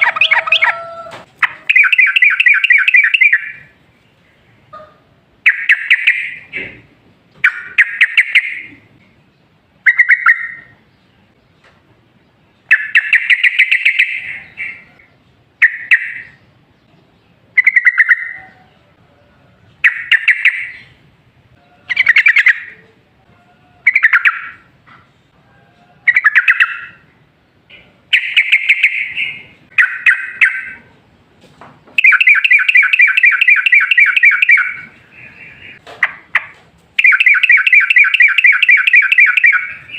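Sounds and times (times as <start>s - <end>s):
bird rapid trill: 1.6s - 3.6s, 12.7s - 14.9s, 28.1s - 30.8s
bird singing bubbly chatter: 12.6s - 18.4s, 23.8s - 24.7s, 26.1s - 30.8s.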